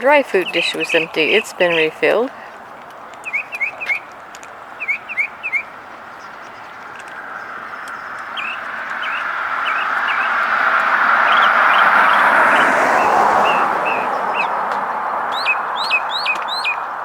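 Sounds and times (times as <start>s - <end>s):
small bird chirping: 0.2s - 2.0s, 15.3s - 16.8s.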